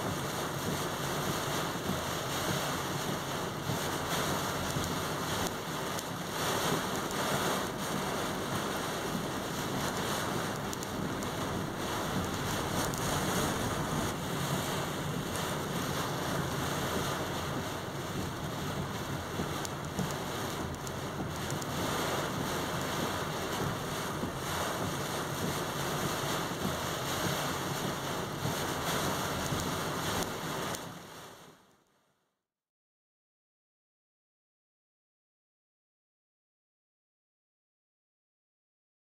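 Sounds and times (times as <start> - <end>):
strong wind gusting: 10.0 - 17.7.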